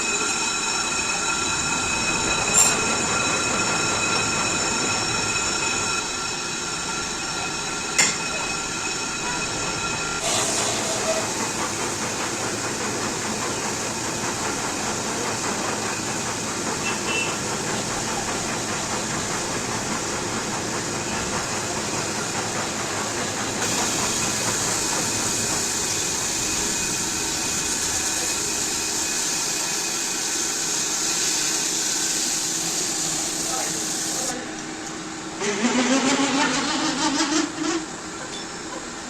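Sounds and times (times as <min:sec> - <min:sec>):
brake lathe running: 0:35.4 - 0:39.0.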